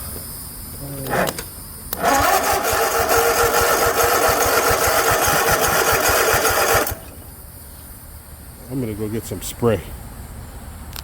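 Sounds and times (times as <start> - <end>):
electric starter cranking engine: 1.0 - 7.2.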